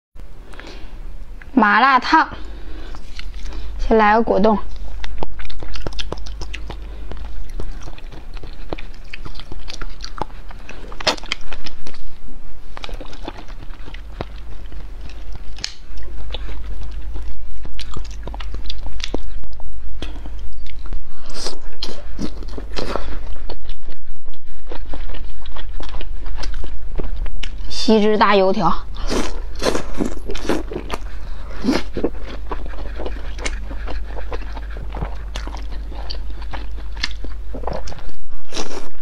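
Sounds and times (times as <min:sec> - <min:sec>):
wet chewing and mouth smacking: 0:02.4 - 0:03.8, 0:04.6 - 0:27.8, 0:28.8 - 0:39.0.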